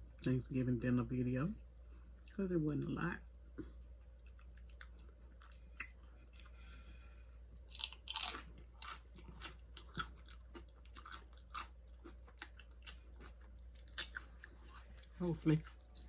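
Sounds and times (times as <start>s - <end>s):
person crunching tortilla chips: 7.5s - 15.2s.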